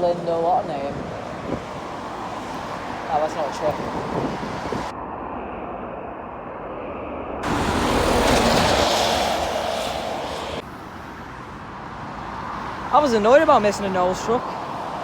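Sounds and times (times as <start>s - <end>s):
road traffic noise: 0.0s - 15.0s
vehicle passing by: 7.4s - 11.3s.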